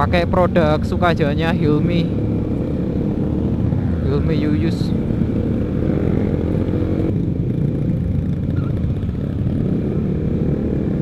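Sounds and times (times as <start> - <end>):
motorcycle exhaust rumble: 4.8 - 11.0.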